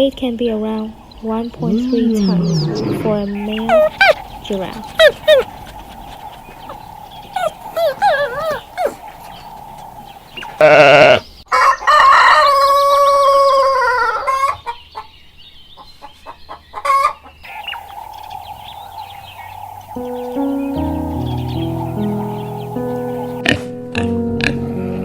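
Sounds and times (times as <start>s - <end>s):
rooster crowing: 3.5s - 14.3s.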